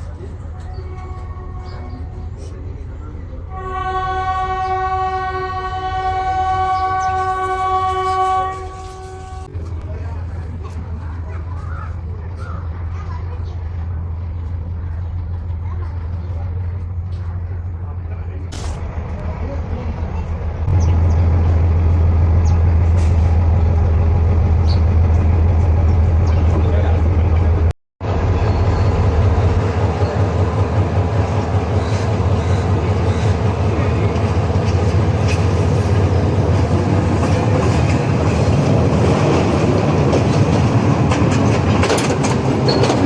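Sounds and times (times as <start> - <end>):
diesel train engine droning: 0.0 - 43.0
train horn blast: 0.6 - 2.4, 3.5 - 9.5.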